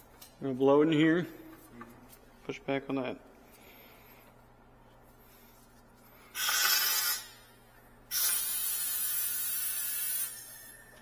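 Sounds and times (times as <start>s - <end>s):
steam pressure hissing blasts: 6.4s - 7.3s, 8.1s - 10.6s.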